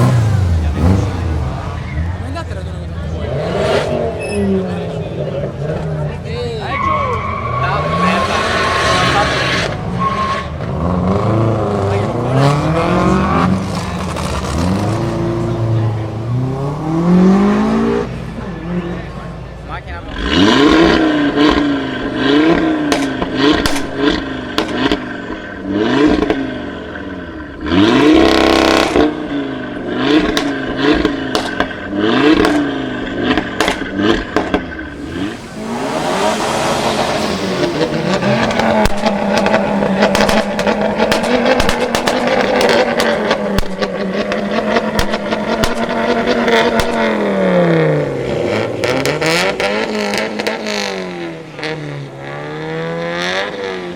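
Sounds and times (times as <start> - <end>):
car engine revving: 0.0 - 53.9
exhaust pops: 20.8 - 26.5, 28.1 - 51.8.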